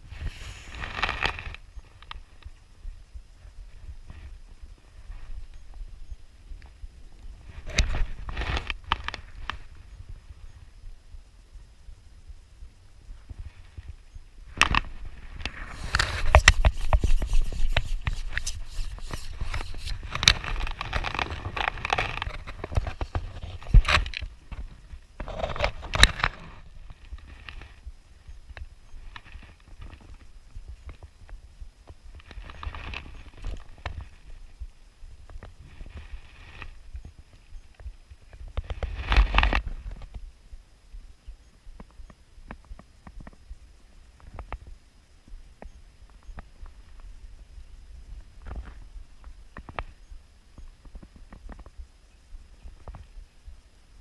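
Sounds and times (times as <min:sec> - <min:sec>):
rustling: 0:00.0 - 0:11.2, 0:13.0 - 0:40.3
handling clicks and rustling: 0:14.6 - 0:27.7.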